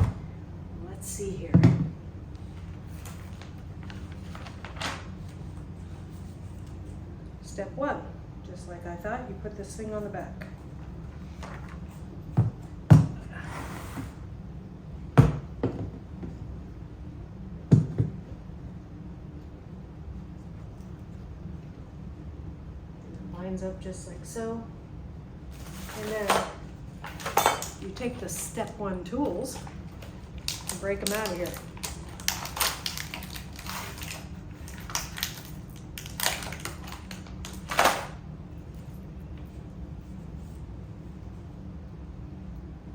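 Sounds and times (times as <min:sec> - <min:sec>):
steady low hum: 0:00.0 - 0:42.9
plastic packaging crackling: 0:29.5 - 0:38.2.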